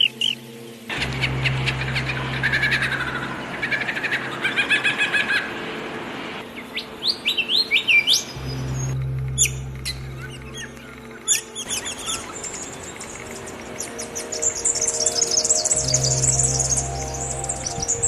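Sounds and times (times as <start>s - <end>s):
bird chirps: 6.6s - 18.0s
low steady hum: 8.2s - 18.0s.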